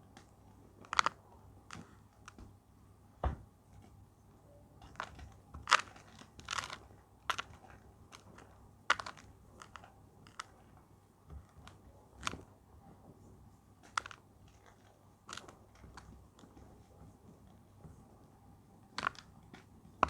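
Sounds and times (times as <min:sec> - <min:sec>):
chalk block crunching: 0:04.9 - 0:10.5, 0:19.0 - 0:19.3.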